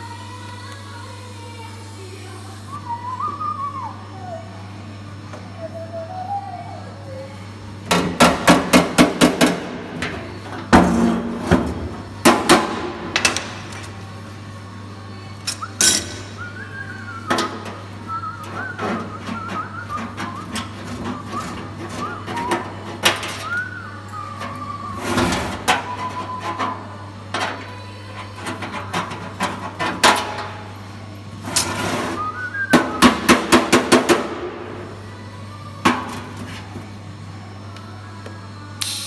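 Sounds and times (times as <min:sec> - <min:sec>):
electrical hum: 0:00.0 - 0:39.0
person whistling: 0:02.7 - 0:04.5, 0:05.6 - 0:07.1, 0:15.5 - 0:26.9, 0:32.0 - 0:33.2.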